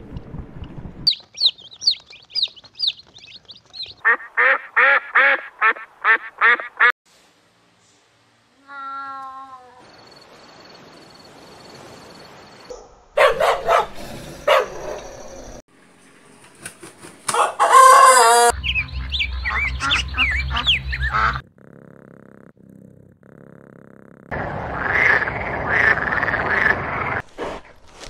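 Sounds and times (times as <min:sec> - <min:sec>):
chickens clucking: 0:01.1 - 0:06.6
rooster crowing: 0:17.3 - 0:18.6.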